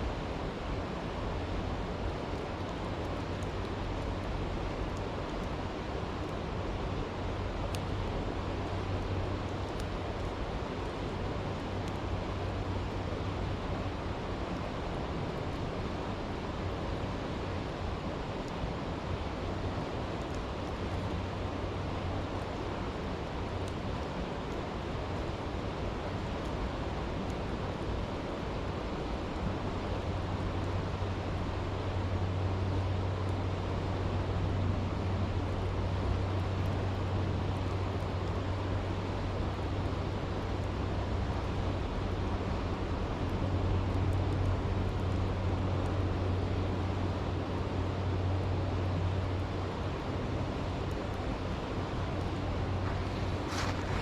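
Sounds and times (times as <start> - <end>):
campfire crackling: 0.0 - 54.0
flowing stream rushing: 49.8 - 54.0.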